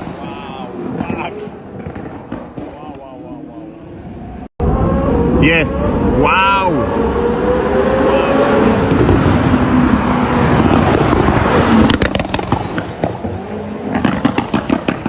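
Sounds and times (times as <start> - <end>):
exhaust crackles and pops: 0.0 - 3.5, 8.8 - 15.0
car engine at high revs: 0.0 - 15.0.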